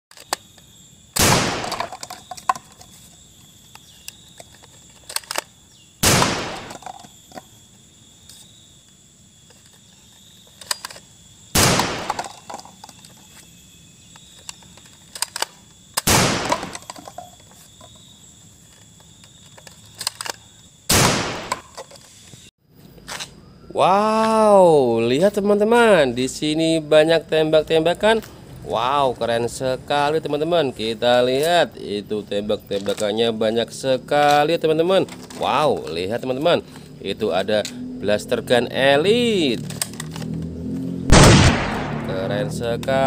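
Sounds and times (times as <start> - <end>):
toy blaster bangs: 1.2 - 2.0, 6.0 - 7.0, 11.6 - 12.6
plastic cups clattering: 1.6 - 3.0, 12.0 - 13.1
faint high whine: 12.1 - 20.8.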